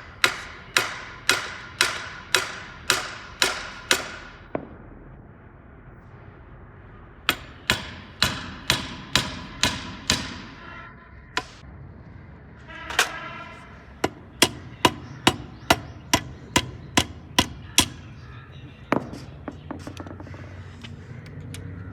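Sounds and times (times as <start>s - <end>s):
hammer blows: 7.2s - 11.6s, 12.7s - 18.2s.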